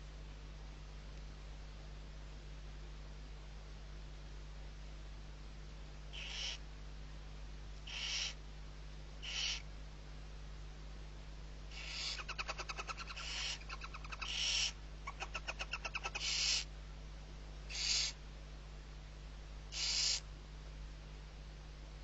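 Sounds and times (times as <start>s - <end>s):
owl chick hissing begging call: 6.1s - 6.6s, 7.9s - 8.4s, 9.2s - 9.7s, 11.7s - 16.7s, 17.7s - 18.2s, 19.7s - 20.2s.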